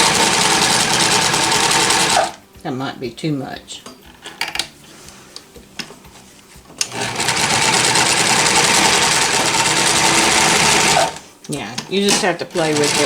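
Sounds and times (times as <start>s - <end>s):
sewing machine stitching: 0.0s - 2.4s, 6.8s - 13.0s.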